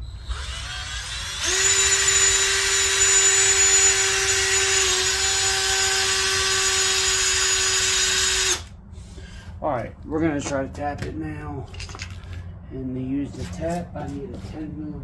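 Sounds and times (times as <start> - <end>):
electric drill whining: 0.0 - 8.7.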